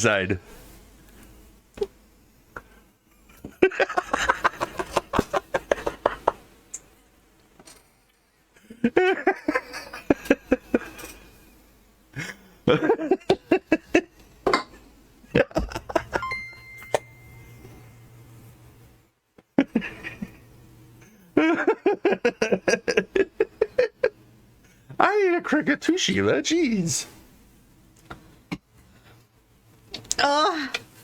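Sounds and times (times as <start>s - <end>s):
people laughing: 3.4s - 6.4s, 8.6s - 11.2s, 12.2s - 14.1s, 15.3s - 16.4s, 19.6s - 20.5s, 21.3s - 24.2s.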